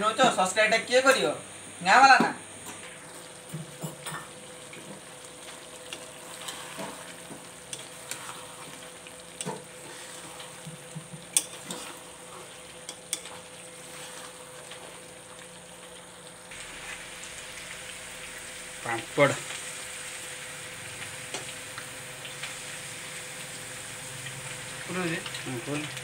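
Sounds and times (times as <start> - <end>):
potatoes frying in oil: 0.0 - 26.0
metal spatula scraping a pan: 6.2 - 7.1, 11.3 - 14.5.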